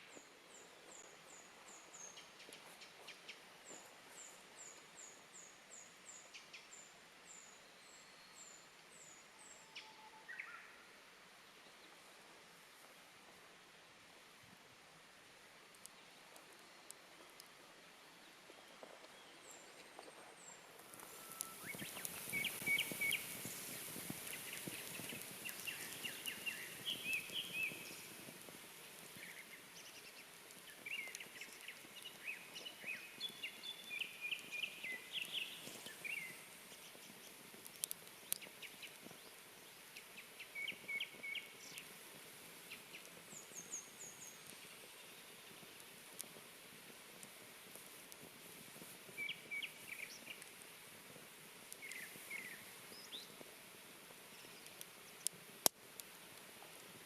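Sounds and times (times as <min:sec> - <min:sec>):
small birds chirping: 0:00.0 - 0:10.8, 0:15.8 - 0:50.9, 0:51.6 - 0:53.5, 0:54.2 - 0:55.4
steady high hiss: 0:00.0 - 0:57.0
wood fire popping: 0:15.6 - 0:17.6, 0:20.7 - 0:57.0.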